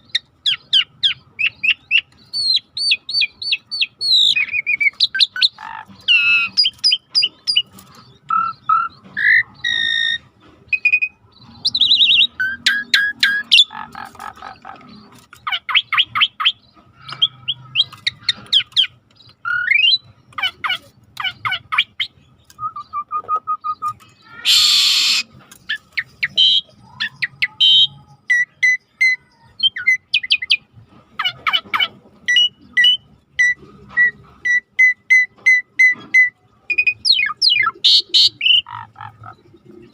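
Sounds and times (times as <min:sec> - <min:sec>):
songbirds singing: 0:00.0 - 0:39.9
harsh rasping bird call: 0:08.3 - 0:25.4, 0:26.0 - 0:30.5, 0:34.0 - 0:39.4.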